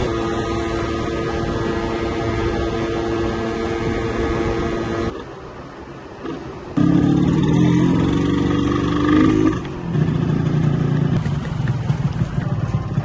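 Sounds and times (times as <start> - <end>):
two-stroke motorcycle engine running: 6.8 - 13.0.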